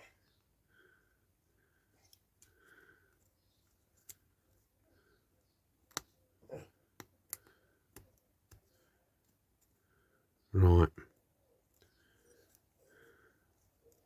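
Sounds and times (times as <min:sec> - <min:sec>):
faint clicks of small tools: 0:02.0 - 0:04.6, 0:05.8 - 0:06.2, 0:07.0 - 0:09.8.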